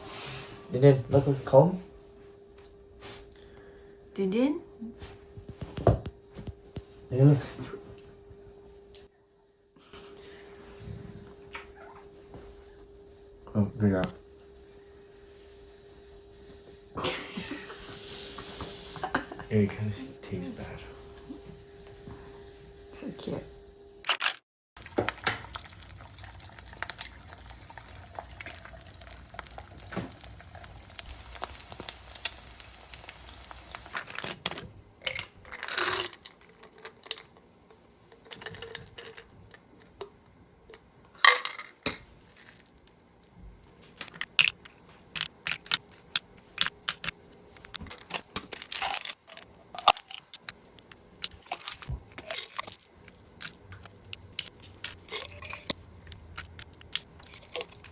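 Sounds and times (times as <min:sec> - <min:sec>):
faint steady hum: 0:00.0 - 0:24.0
household items clicking and clinking: 0:43.9 - 0:57.9.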